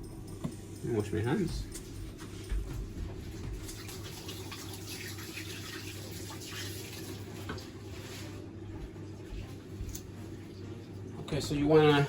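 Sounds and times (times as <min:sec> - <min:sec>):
tap water running into sink: 0:03.4 - 0:07.8.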